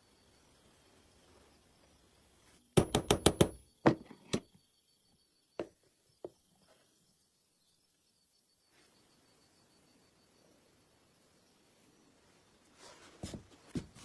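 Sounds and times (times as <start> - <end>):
hard objects knocking: 2.8 - 4.4.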